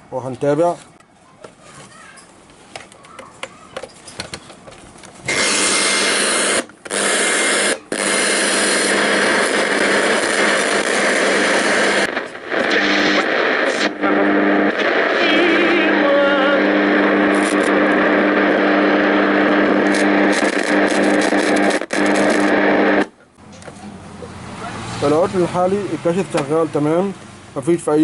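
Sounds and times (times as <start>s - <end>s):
cassette radio hiss and hum: 5.0s - 23.7s.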